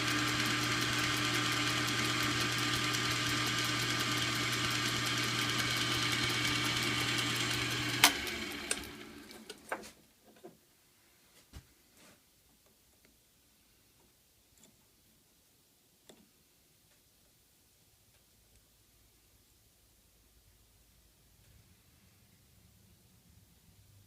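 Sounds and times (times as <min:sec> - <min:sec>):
electric motor humming: 0:00.0 - 0:09.6.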